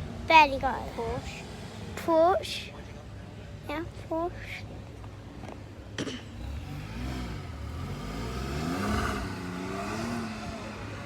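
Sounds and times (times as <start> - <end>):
sports car accelerating past: 6.4 - 11.0.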